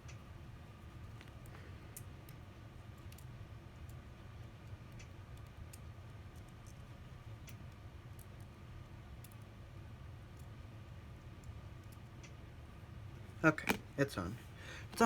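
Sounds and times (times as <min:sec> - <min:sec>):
small clicks and ticks: 0:00.0 - 0:09.5, 0:10.3 - 0:10.6, 0:11.2 - 0:12.4
low steady hum: 0:00.0 - 0:15.0.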